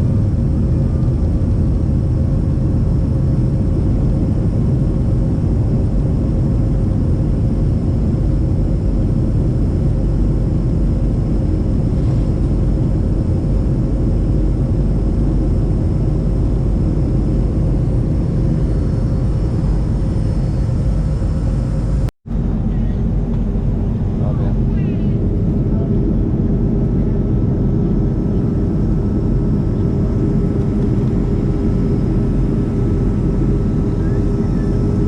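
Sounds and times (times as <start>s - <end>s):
airliner engine and airflow rumble: 0.0s - 35.0s.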